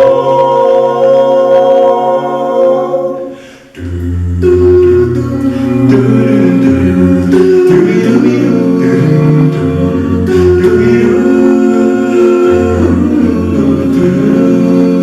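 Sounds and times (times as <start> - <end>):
male vocal group harmony: 0.0 - 15.0
deep sung bass line: 3.8 - 15.0.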